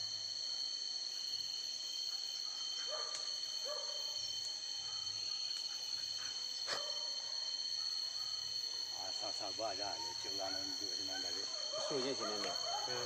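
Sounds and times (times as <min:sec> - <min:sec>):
cicadas and crickets droning: 0:00.0 - 0:13.0.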